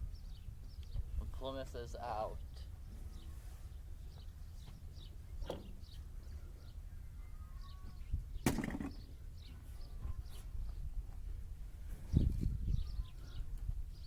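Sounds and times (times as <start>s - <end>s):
faint bird chirps: 2.3s - 10.9s, 12.0s - 14.0s.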